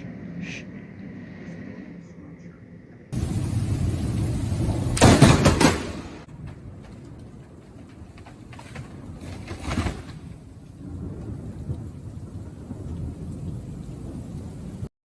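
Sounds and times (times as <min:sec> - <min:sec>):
rain falling: 0:03.1 - 0:14.9
thunder rumbling: 0:03.1 - 0:14.9.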